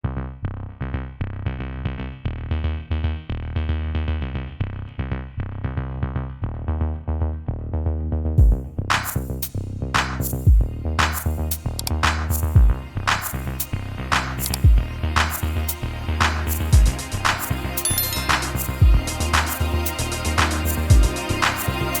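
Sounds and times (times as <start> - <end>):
deep bass hit: 8.4 - 17.1, 18.0 - 21.4
electronic music with drum-machine beat: 8.4 - 22.0
crashing cymbal-like hits: 17.8 - 22.0.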